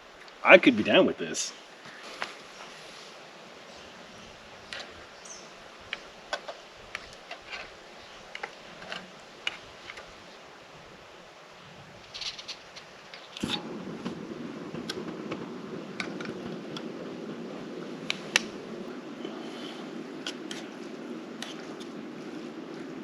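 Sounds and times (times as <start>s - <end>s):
low rushing noise: 13.4s - 23.0s.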